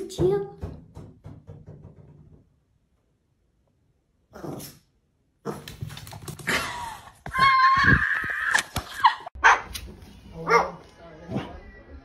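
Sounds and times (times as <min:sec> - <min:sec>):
dog barking: 0:09.4 - 0:09.8, 0:10.4 - 0:10.8.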